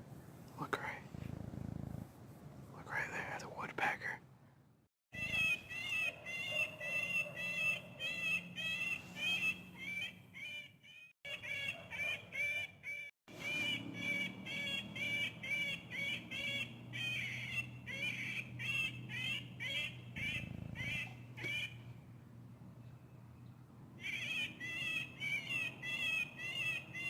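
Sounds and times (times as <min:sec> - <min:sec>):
woodpecker calling: 0:05.1 - 0:22.0, 0:22.9 - 0:27.0.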